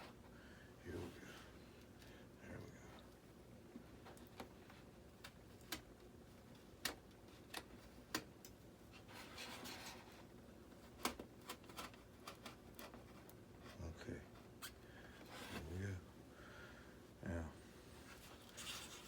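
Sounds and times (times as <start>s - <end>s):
blade clicking and creaking in foam: 18.3s - 19.0s.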